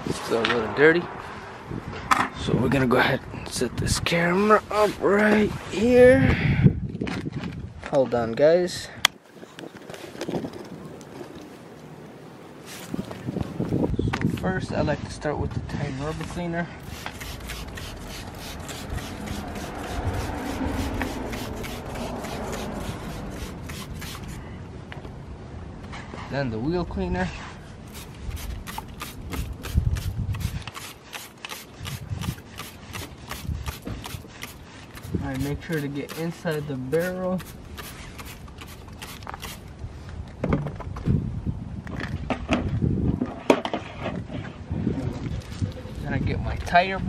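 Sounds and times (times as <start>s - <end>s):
spray bottle hissing sprays: 16.8s - 24.4s, 27.9s - 39.6s.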